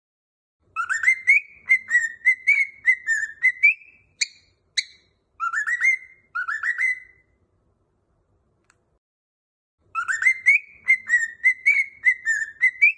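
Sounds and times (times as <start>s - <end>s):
sharp bird chirps: 0.6s - 7.4s, 9.9s - 12.9s
cockatiel whistling: 0.7s - 7.4s, 9.9s - 12.9s.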